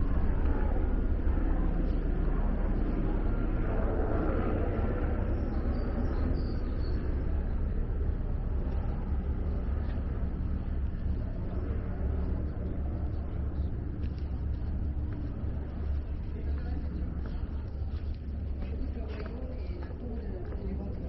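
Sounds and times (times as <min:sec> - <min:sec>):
haze of noise: 0:00.0 - 0:21.0
low outdoor rumble: 0:00.0 - 0:21.0.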